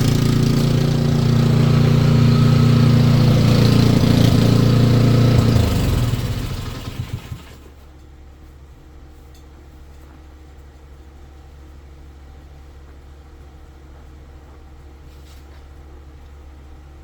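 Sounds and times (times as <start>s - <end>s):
engine running loudly: 0.0s - 7.6s.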